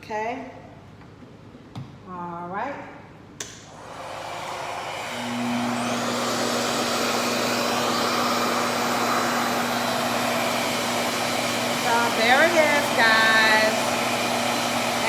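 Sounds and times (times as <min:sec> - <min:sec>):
hair dryer motor and air rush: 0:03.5 - 0:15.0.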